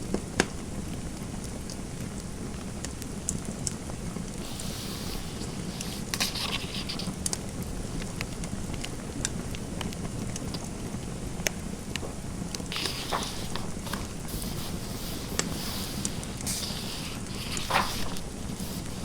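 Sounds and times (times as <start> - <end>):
fireplace crackling: 12.0 - 19.0
pen writing on paper: 12.8 - 19.0.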